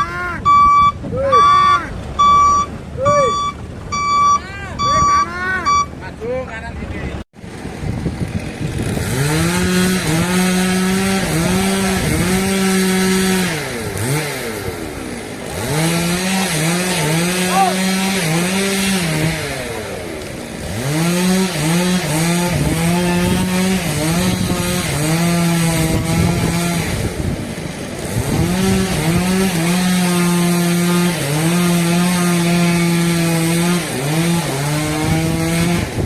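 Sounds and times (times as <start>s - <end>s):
chainsaw cutting wood: 7.4s - 36.0s.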